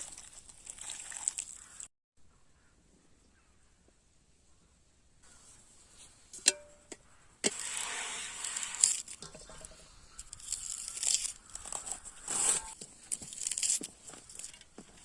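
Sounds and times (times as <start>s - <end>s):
rustling and crinkling: 7.5s - 15.0s.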